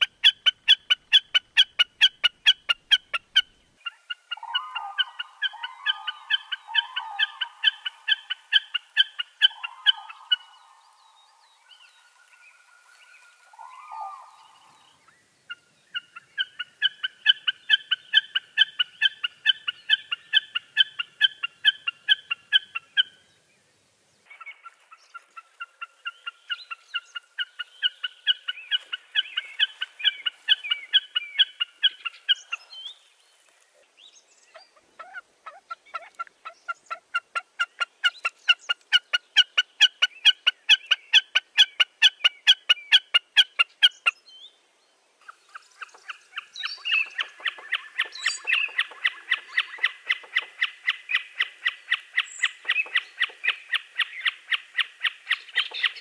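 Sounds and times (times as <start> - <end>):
bird calling rapid repeated notes: 45.5 - 56.0.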